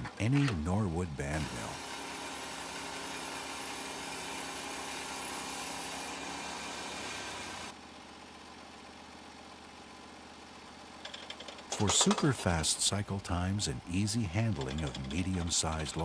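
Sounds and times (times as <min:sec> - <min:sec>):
sawmill engine running: 0:00.0 - 0:07.8, 0:11.1 - 0:16.0.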